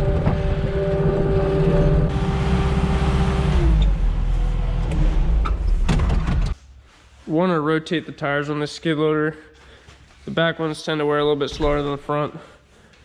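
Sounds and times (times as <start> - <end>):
farm machine engine running: 0.0 - 5.4.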